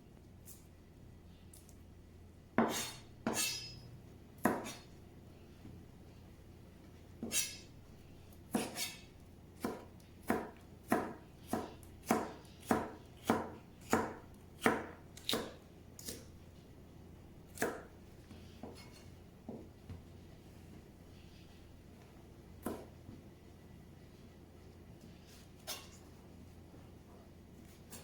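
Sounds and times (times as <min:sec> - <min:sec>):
knife chopping on cutting board: 0:02.6 - 0:03.8, 0:04.4 - 0:04.9, 0:07.2 - 0:07.7, 0:08.5 - 0:16.3, 0:17.5 - 0:17.9, 0:22.6 - 0:22.9.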